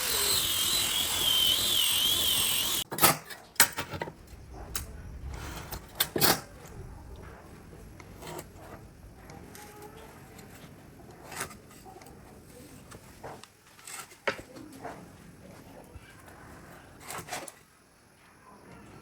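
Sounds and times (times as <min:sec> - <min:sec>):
handling scrapes and rustles: 0:05.2 - 0:17.7.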